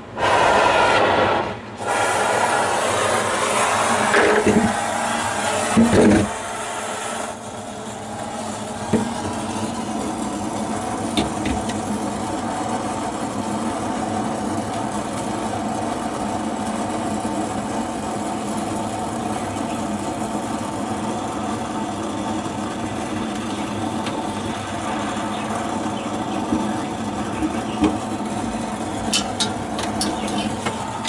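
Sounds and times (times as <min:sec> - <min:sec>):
motor humming: 0:01.7 - 0:31.0.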